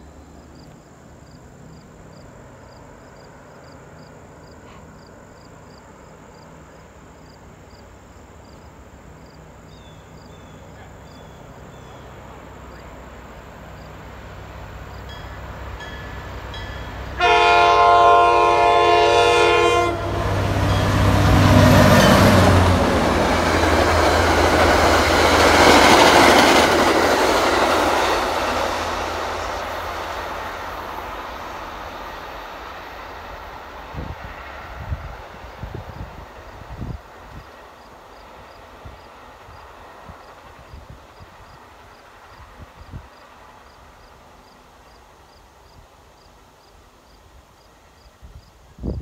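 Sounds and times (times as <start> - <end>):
locomotive engine hum: 0.0 - 45.6
train wheels rushing on rails: 1.6 - 49.0
train horn: 17.0 - 24.0.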